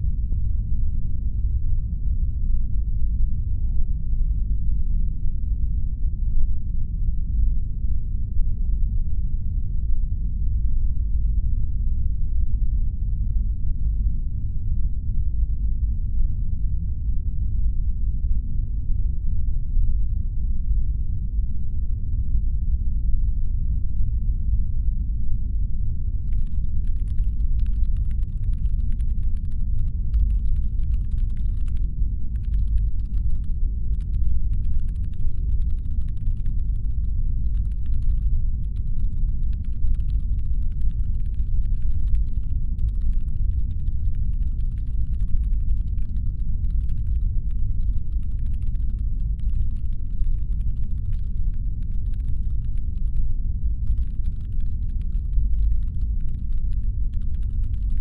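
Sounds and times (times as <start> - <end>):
deep spaceship engine hum: 12.9 - 58.0
faint fast crackle of clicks: 26.2 - 58.0.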